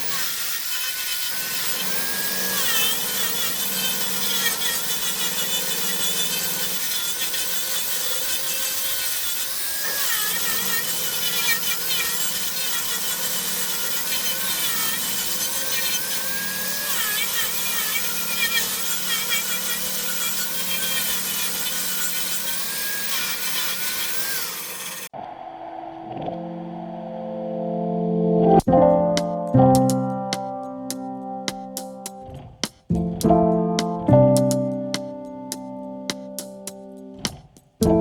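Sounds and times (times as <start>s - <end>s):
tool scraping spinning wood: 0.0s - 25.1s
wood lathe motor hum: 0.0s - 25.1s
high wavering whine: 25.2s - 28.7s.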